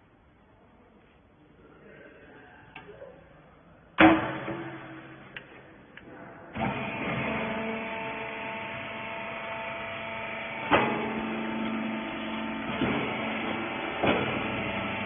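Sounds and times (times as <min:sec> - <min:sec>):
baler machine hum: 0:04.0 - 0:15.0.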